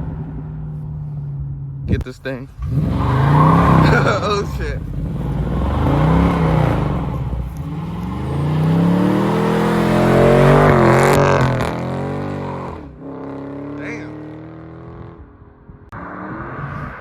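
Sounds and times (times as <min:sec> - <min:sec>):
tyres spinning: 0:02.5 - 0:11.1
car engine revving hard: 0:02.5 - 0:15.2.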